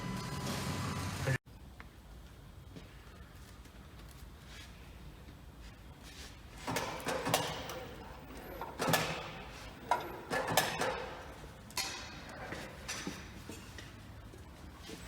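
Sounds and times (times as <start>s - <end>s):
metal tools knocking and clinking: 6.7s - 13.2s.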